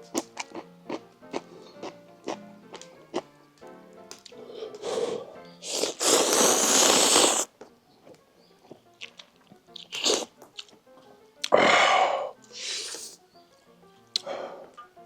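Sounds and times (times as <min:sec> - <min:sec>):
quiet background music: 0:00.0 - 0:15.0
person breathing: 0:04.4 - 0:06.5, 0:11.6 - 0:13.2, 0:14.2 - 0:14.8
person slurping noodles: 0:04.6 - 0:07.5, 0:09.8 - 0:10.3, 0:11.5 - 0:13.2.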